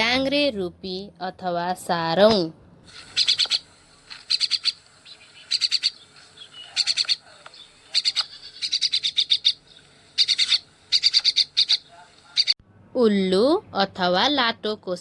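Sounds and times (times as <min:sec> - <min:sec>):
bird chattering: 0:02.9 - 0:12.6.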